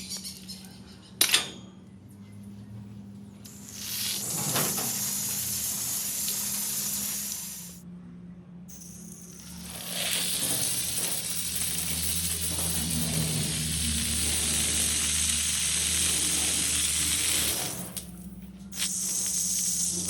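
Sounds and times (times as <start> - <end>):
water jet spraying from hose: 3.5 - 7.8, 9.6 - 18.1, 18.8 - 20.0.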